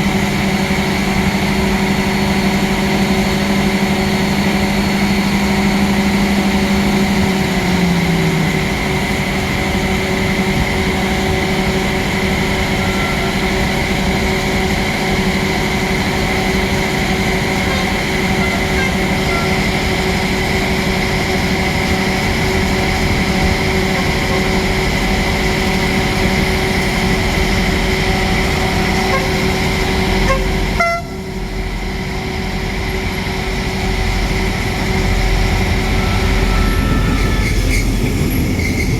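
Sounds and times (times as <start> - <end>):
train mechanical drone: 0.0 - 38.9.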